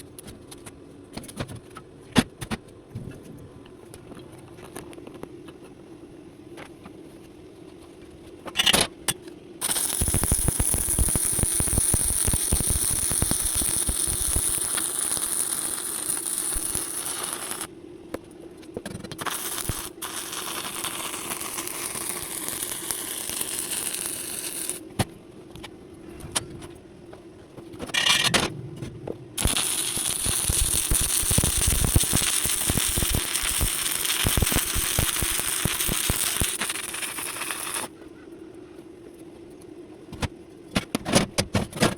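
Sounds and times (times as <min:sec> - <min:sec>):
welding arc crackling and hissing: 0:09.6 - 0:17.7, 0:19.0 - 0:25.0, 0:29.4 - 0:37.9.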